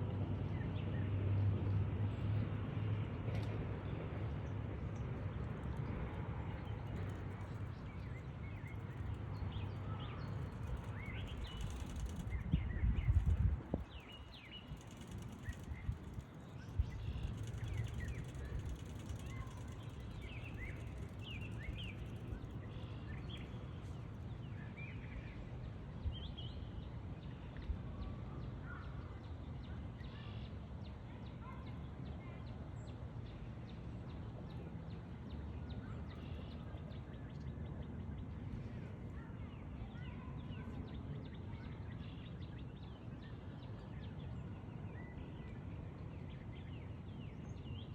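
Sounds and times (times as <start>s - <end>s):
low background rumble: 0.1s - 26.9s
small birds chirping: 6.4s - 23.7s.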